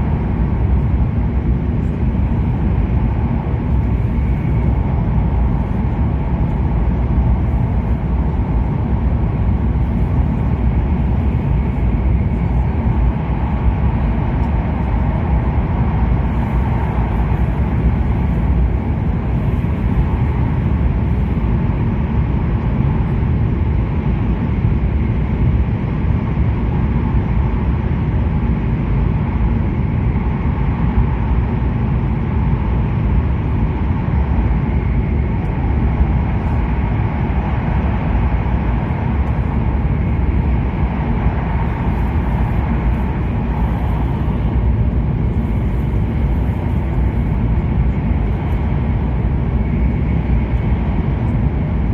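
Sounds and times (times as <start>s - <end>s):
train rumble inside cabin: 0.0s - 51.9s.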